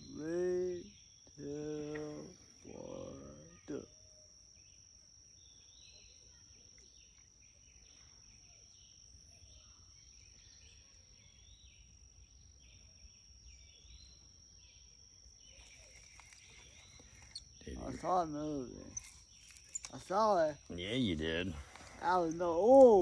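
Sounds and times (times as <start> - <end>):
high-pitched insect drone: 0.0 - 6.6, 7.4 - 23.0
short chirping calls: 13.6 - 20.8.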